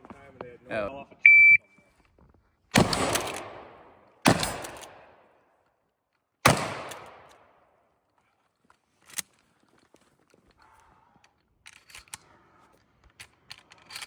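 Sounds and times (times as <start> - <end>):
shotgun shots: 2.8 - 5.2, 6.4 - 7.5.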